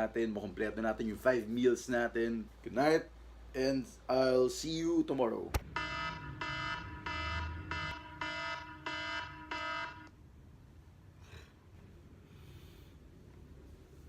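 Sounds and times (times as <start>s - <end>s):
alarm beeping: 5.6s - 10.1s.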